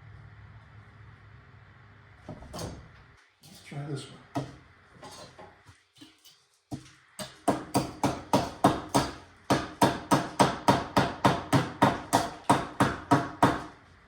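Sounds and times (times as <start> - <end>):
tool knocking on gingerbread: 6.7 - 13.7.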